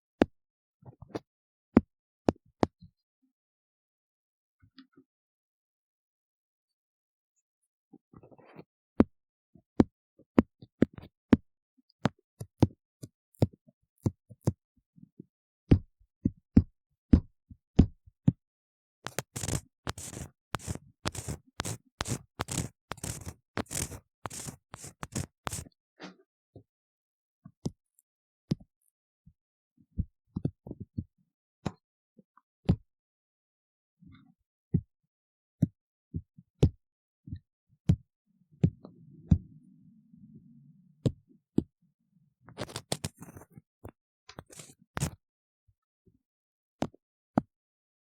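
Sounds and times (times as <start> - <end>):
ear tool clicks and taps: 19.0 - 25.7, 42.6 - 45.2
rapid scratching: 19.1 - 25.7.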